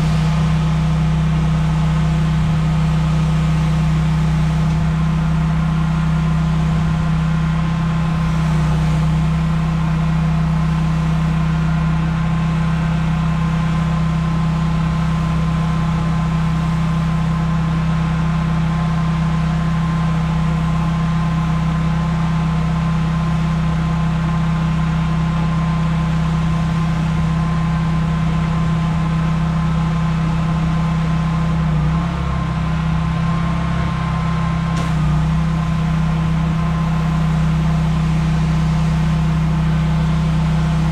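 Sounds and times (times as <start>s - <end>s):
pressure washer engine drone: 0.0s - 40.9s.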